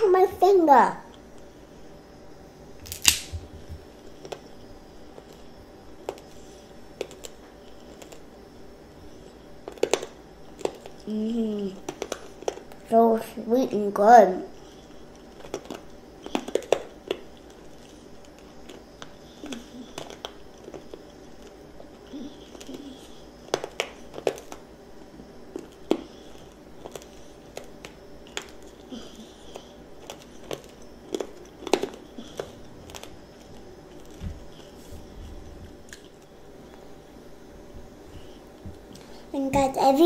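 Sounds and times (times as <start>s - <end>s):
candy coating crunching: 2.8s - 3.4s, 4.0s - 12.9s, 14.5s - 36.8s
wet chewing: 9.1s - 11.1s, 14.5s - 36.3s.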